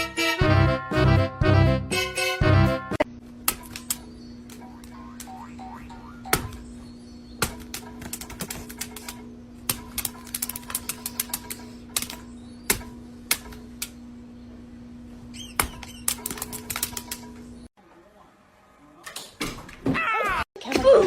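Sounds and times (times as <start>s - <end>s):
steady low hum: 2.8s - 17.7s.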